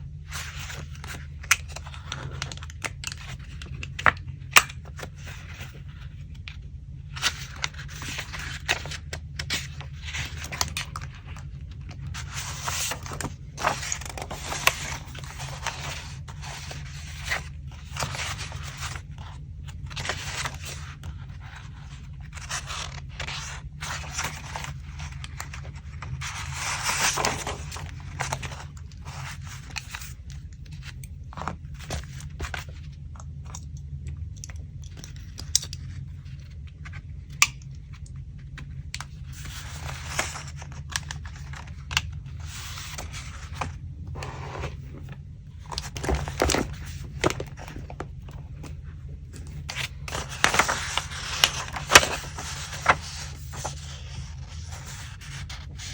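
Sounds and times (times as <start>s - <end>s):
low steady hum: 0.0s - 55.9s
paper rustling and tearing: 7.1s - 30.1s, 39.4s - 48.7s, 49.4s - 55.9s.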